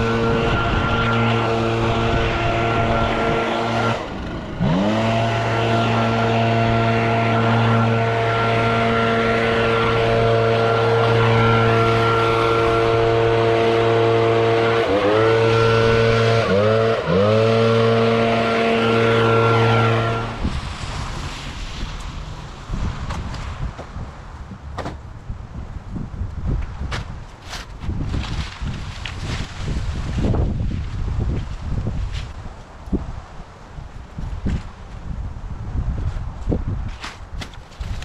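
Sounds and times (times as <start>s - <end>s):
small two-stroke engine revving: 0.0s - 20.5s.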